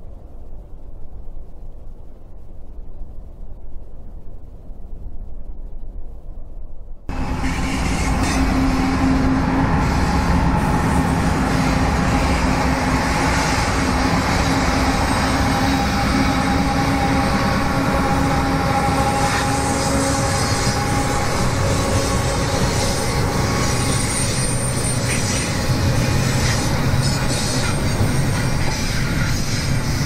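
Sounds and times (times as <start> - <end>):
train rumbling: 0.0 - 30.0
diesel locomotives droning: 7.1 - 30.0.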